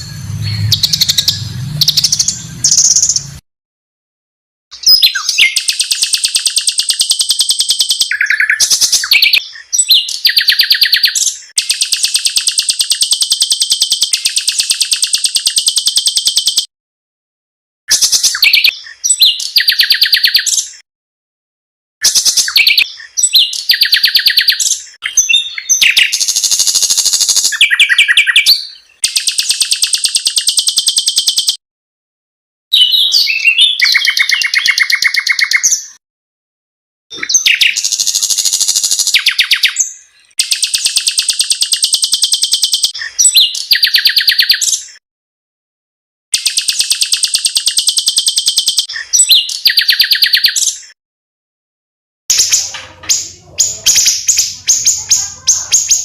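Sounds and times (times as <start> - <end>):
songbirds singing trills: 0.0 - 3.4, 4.8 - 16.7, 17.9 - 20.8, 22.0 - 31.6, 32.7 - 36.0, 37.1 - 45.0, 46.4 - 51.0, 52.3 - 56.0.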